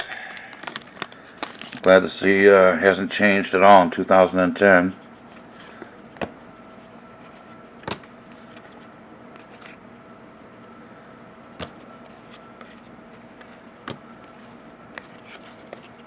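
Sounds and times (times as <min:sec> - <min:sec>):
faint electrical hum: 0:00.0 - 0:16.0
trading cards being flipped: 0:05.3 - 0:09.8, 0:11.6 - 0:16.0.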